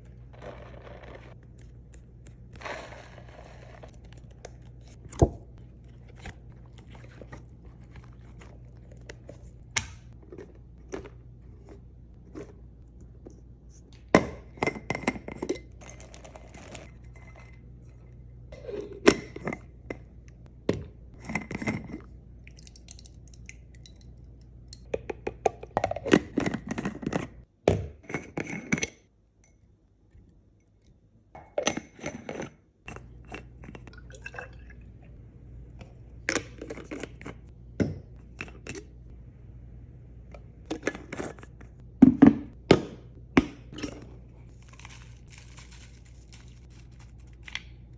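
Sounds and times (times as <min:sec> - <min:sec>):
low steady hum: 0:00.0 - 0:47.9
plastic packaging rustling: 0:44.5 - 0:47.5.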